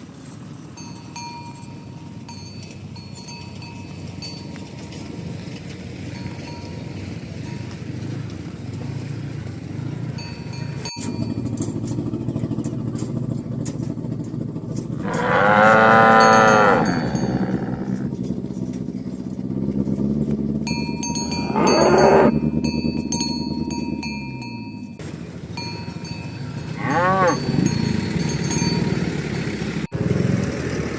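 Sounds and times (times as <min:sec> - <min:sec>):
steady low rumble: 0:01.6 - 0:29.9
cows mooing: 0:14.8 - 0:18.4, 0:19.6 - 0:25.0, 0:25.9 - 0:29.9.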